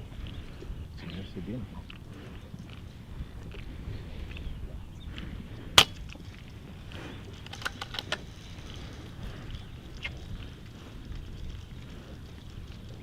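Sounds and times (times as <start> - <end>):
air rifle shot: 5.8 - 6.0.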